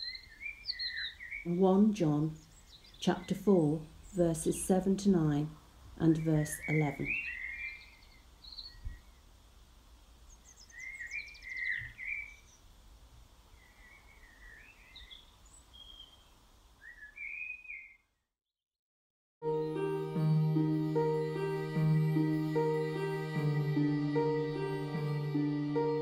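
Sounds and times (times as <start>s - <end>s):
small birds chirping: 0.0s - 9.4s, 10.2s - 12.8s, 13.4s - 18.3s
faint outdoor background noise: 0.0s - 18.4s
soft keyboard music: 19.4s - 26.0s.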